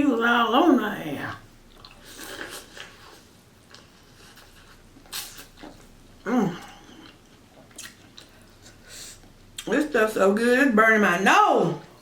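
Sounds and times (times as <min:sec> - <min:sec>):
wet chewing and lip-smacking: 0:01.7 - 0:05.9, 0:06.9 - 0:09.7.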